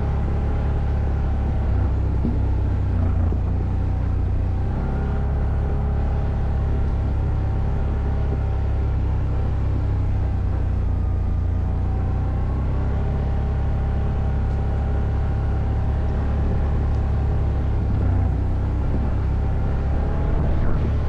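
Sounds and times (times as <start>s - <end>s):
atv engine running: 0.0s - 21.0s
heavy low rumble: 0.0s - 21.0s.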